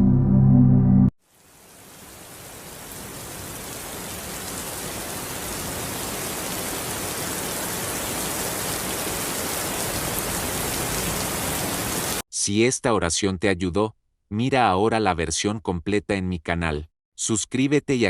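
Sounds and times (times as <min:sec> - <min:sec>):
steady rain falling: 0:01.2 - 0:12.2.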